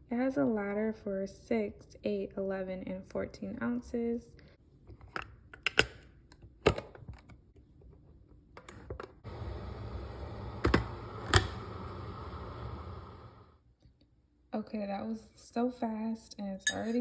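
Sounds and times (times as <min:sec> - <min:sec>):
coffee maker pump hum: 0:09.2 - 0:13.6
hot water hissing: 0:09.3 - 0:13.6.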